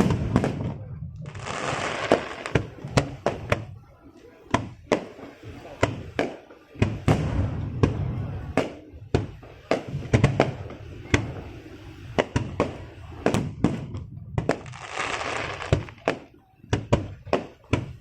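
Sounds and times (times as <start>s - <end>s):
hissing crackle: 0.0s - 3.3s, 6.9s - 16.3s
fireworks bangs: 0.0s - 18.0s.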